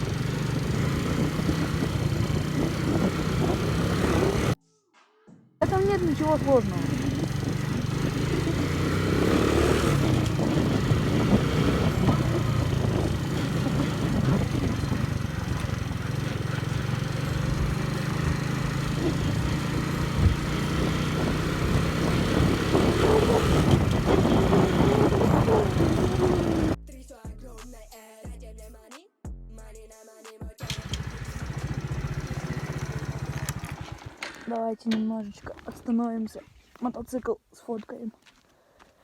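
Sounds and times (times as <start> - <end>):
motorcycle engine running: 0.0 - 4.6, 5.6 - 26.8, 30.6 - 34.5
wind rush over microphone: 0.0 - 4.6, 5.7 - 26.8.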